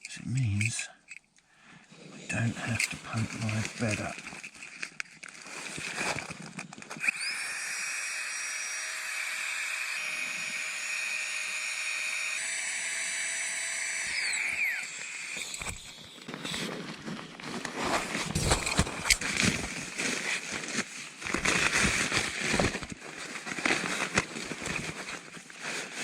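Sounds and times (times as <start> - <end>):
rustling of handling: 2.0 - 7.1, 15.6 - 26.0
small air pump whining: 7.0 - 16.8.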